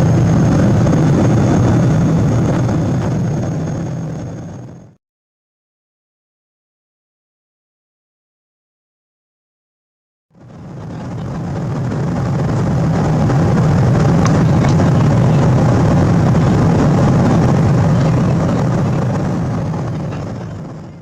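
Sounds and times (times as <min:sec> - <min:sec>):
jet engine drone: 0:00.0 - 0:05.0, 0:10.4 - 0:21.0
rushing air: 0:00.0 - 0:05.0, 0:10.5 - 0:20.7.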